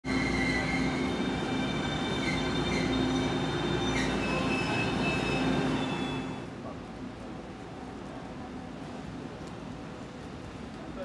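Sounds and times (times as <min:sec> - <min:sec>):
passenger train running noise: 0:00.0 - 0:11.0
wheels squealing: 0:00.1 - 0:06.5.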